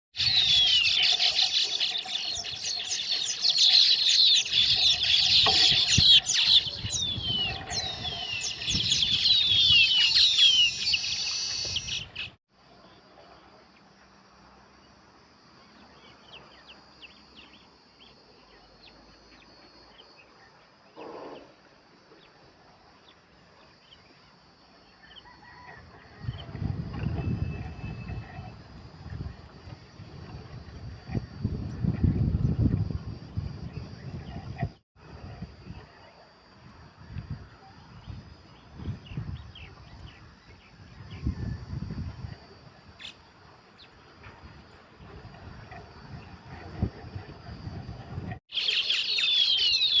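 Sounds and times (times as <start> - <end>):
weaver birds chattering: 48.5 - 50.0.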